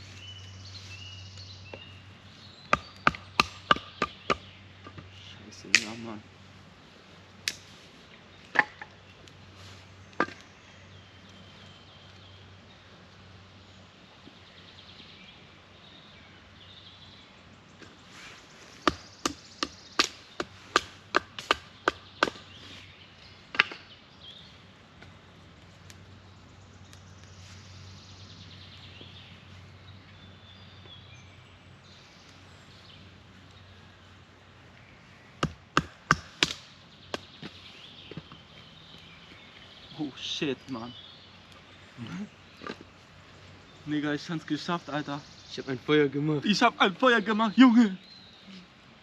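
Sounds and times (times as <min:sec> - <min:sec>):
chopping strikes on wood: 0:02.7 - 0:05.0, 0:05.7 - 0:06.0, 0:08.5 - 0:08.9, 0:18.8 - 0:22.5, 0:35.4 - 0:38.3.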